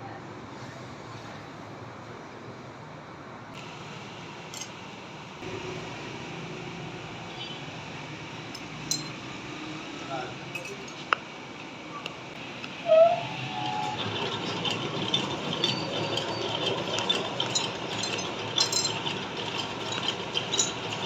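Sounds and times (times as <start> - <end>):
sharp metallic clink: 4.5 - 4.8, 8.5 - 9.2.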